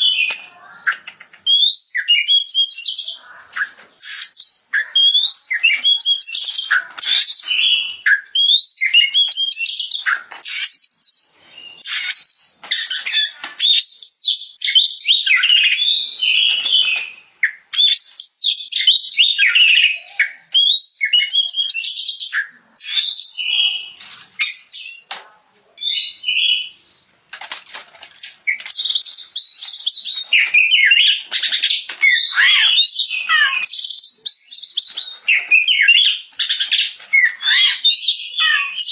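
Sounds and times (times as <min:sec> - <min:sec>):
songbird whistling and chattering: 0:00.0 - 0:25.1, 0:28.2 - 0:38.9.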